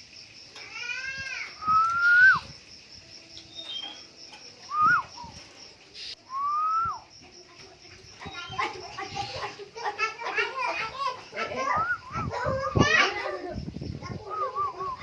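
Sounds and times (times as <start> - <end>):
bird fluty whistles: 1.6 - 2.6, 4.7 - 5.4, 6.0 - 7.0, 14.2 - 15.0.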